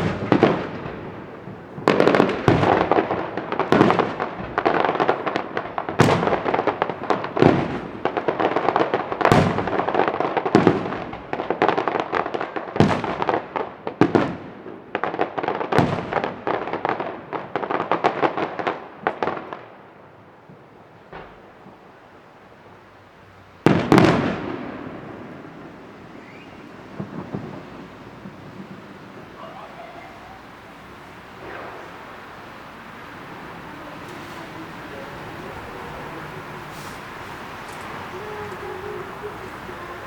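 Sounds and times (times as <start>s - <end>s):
firework shells bursting: 0.0s - 11.7s, 23.6s - 40.0s
firework crackling: 0.0s - 40.0s.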